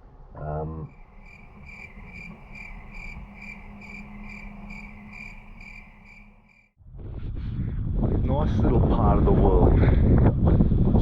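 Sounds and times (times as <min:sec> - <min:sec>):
low steady hum: 0:00.7 - 0:06.7
cricket chirping: 0:00.8 - 0:06.7
faint continuous trill: 0:00.8 - 0:06.7.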